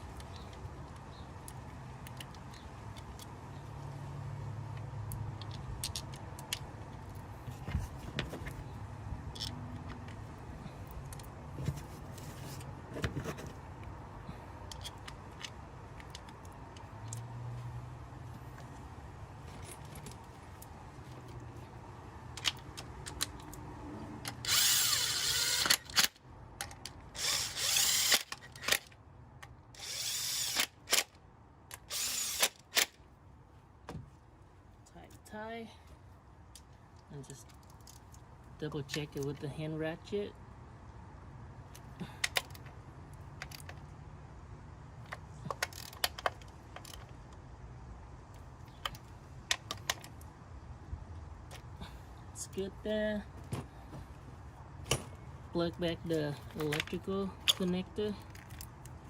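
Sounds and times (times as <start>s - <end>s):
tool handling clicks and knocks: 4.7s - 17.3s, 19.4s - 33.0s, 36.5s - 39.4s, 41.7s - 43.9s, 45.0s - 47.4s, 48.4s - 50.3s, 53.3s - 55.4s, 56.1s - 59.0s
cordless power driver spinning: 24.3s - 26.1s, 27.2s - 28.7s, 29.8s - 30.8s, 31.9s - 32.7s.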